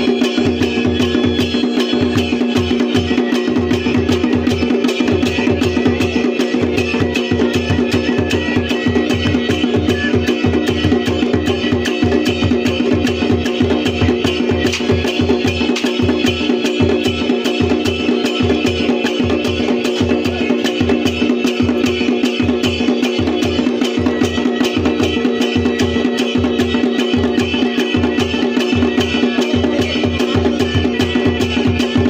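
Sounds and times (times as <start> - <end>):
drums beating fast rhythm: 0.0 - 32.0.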